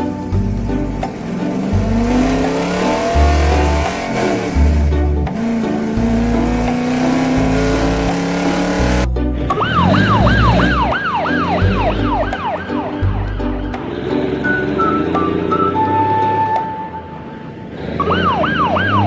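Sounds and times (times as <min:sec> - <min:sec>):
music with bass beat: 0:00.0 - 0:15.4
car engine rising in pitch: 0:00.0 - 0:19.0
police siren yelping: 0:09.5 - 0:13.8, 0:18.0 - 0:19.0.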